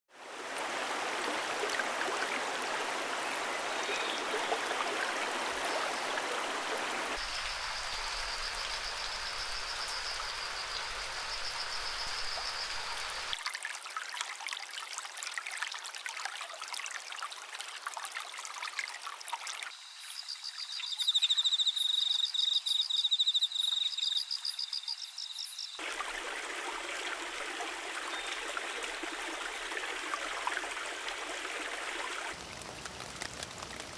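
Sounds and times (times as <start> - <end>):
stream water rushing: 0.2 - 13.5, 25.8 - 33.9
high trilling bird call: 20.0 - 25.8.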